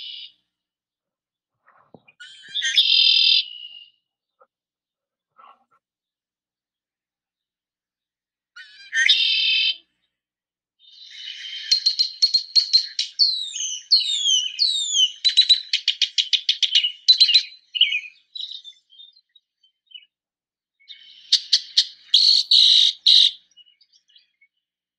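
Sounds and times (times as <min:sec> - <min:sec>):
songbird singing: 0:01.9 - 0:04.5, 0:10.9 - 0:20.2, 0:20.8 - 0:24.7.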